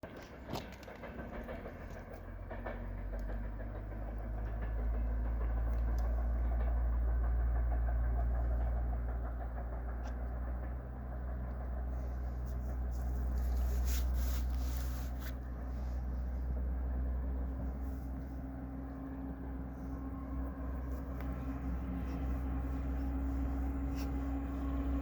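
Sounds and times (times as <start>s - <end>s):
train rumbling: 0.0s - 25.0s.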